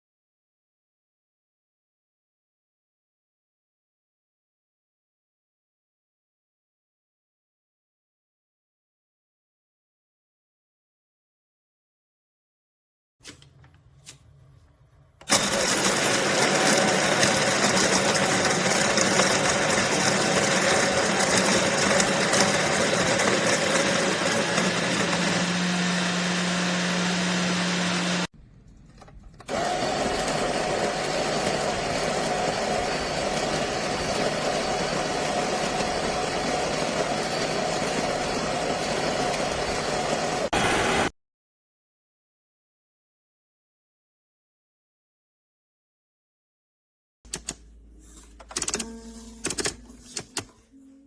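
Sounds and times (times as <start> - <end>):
electric coffee grinder grinding beans: 15.3 - 28.3, 29.5 - 41.1.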